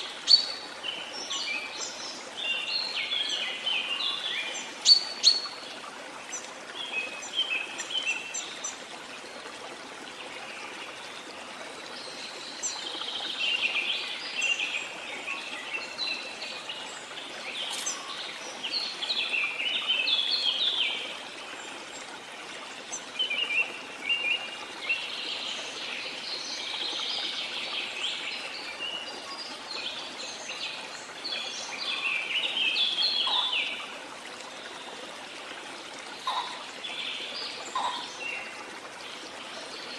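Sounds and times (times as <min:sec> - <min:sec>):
birds singing and chirping: 0:00.0 - 0:05.6, 0:17.5 - 0:21.0, 0:30.2 - 0:33.8, 0:36.2 - 0:38.6.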